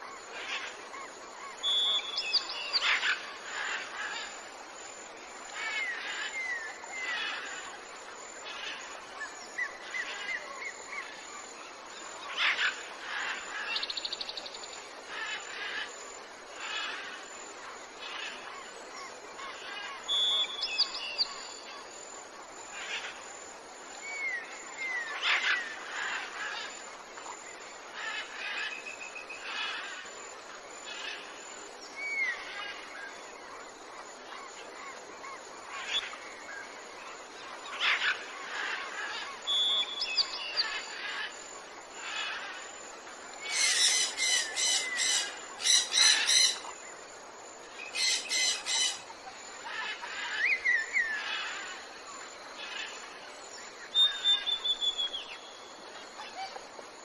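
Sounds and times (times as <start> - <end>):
outdoor hiss: 0.0 - 57.0
small birds chirping: 47.8 - 53.0.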